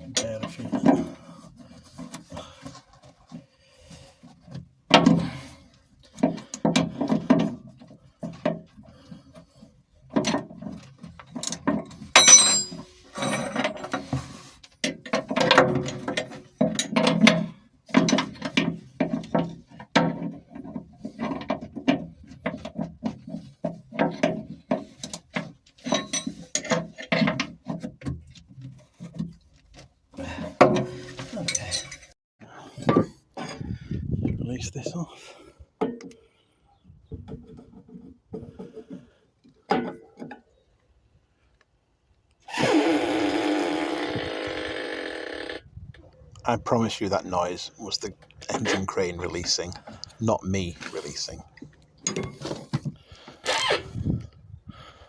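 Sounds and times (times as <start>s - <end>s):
tools knocking and clinking: 11.4s - 13.9s, 52.0s - 52.6s.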